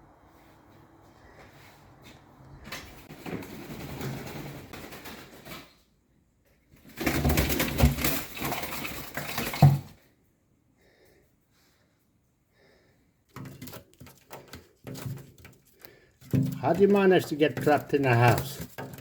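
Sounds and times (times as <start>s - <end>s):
bird wings flapping: 2.7s - 5.9s, 6.8s - 9.9s
rustling and knocks: 13.3s - 19.0s.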